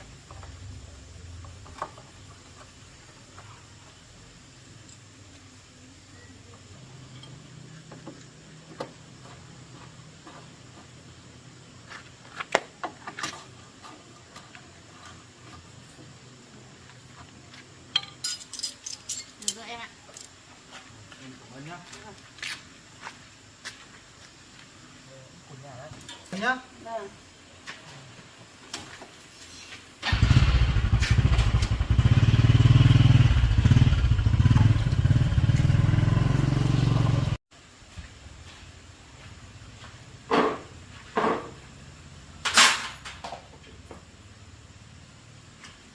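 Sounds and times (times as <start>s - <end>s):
small motorcycle engine running: 30.0s - 37.4s.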